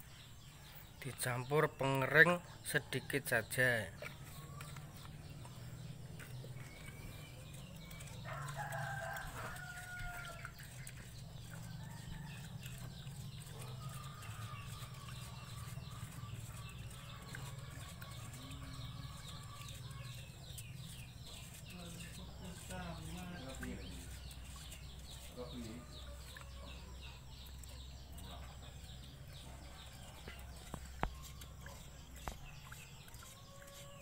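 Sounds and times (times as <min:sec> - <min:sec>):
rooster crowing: 0:08.2 - 0:10.4.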